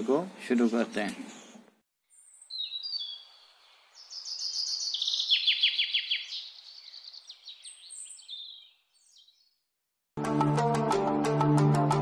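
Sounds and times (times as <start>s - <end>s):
birds chirping and whistling: 1.2s - 9.6s.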